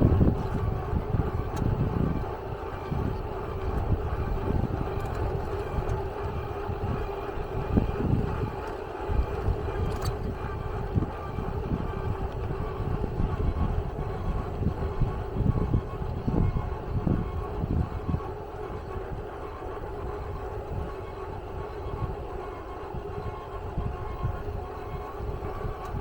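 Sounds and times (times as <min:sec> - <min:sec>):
faint constant hum: 0:00.0 - 0:26.0
wind buffeting: 0:00.0 - 0:26.0.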